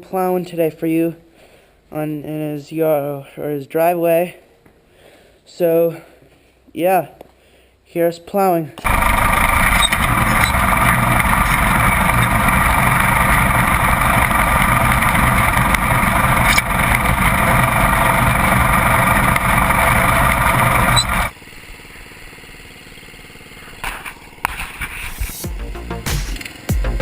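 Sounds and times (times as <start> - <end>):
lawn tractor engine running: 8.8 - 25.0.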